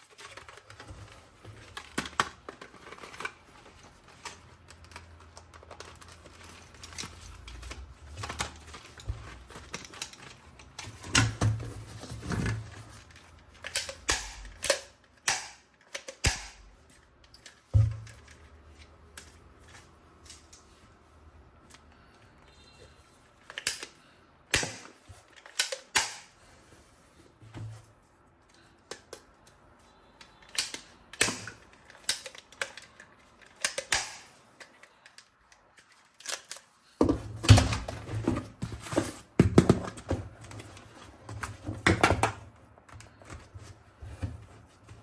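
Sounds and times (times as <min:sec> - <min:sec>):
objects handled by hand: 0:00.0 - 0:45.0.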